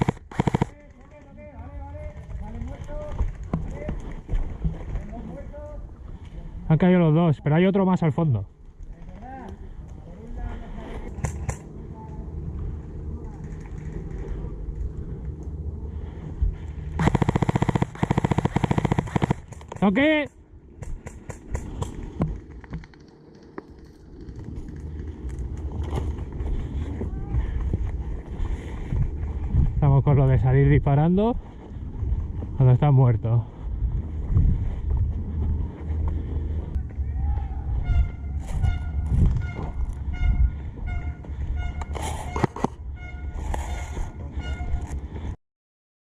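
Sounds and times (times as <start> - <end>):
sharp clicks: 0.0 - 1.4, 17.0 - 19.9
sharp clicks and cracks: 17.0 - 20.1, 20.8 - 25.7
wind rumble on microphone: 23.7 - 45.4.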